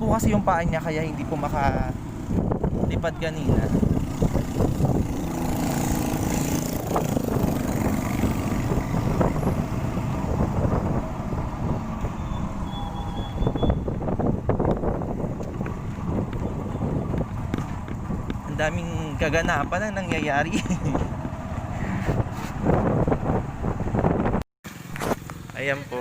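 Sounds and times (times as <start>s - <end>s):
low rumble of traffic: 0.0s - 26.0s.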